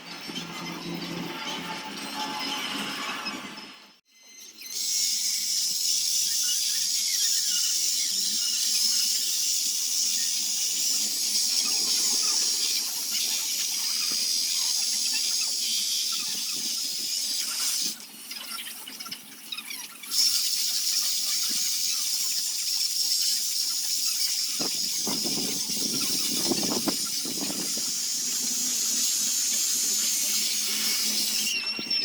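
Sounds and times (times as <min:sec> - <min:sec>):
power tool whining on wood: 0:20.3 - 0:32.0.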